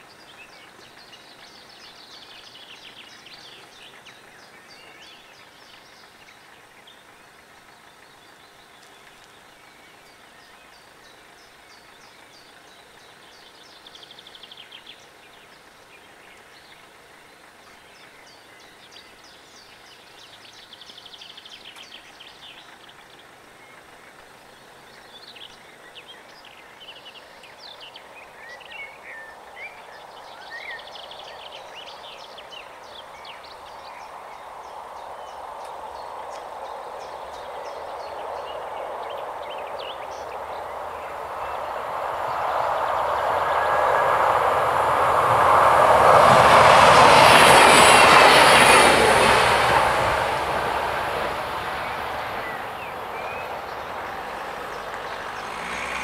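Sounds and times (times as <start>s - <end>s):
songbirds trilling and chirping: 0.0s - 56.0s
diesel railcar approaching: 37.2s - 56.0s.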